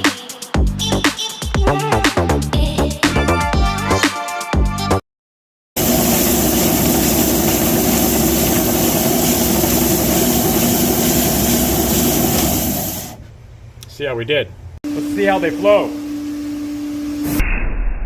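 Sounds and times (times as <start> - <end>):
belt sander running: 5.8 - 13.2.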